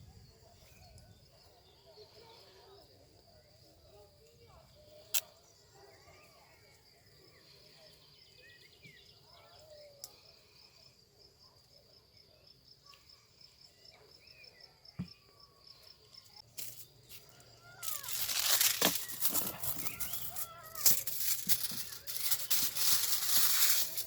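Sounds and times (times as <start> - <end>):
birds chirping: 13.7 - 24.0
loud rustling with crackles: 16.5 - 24.0.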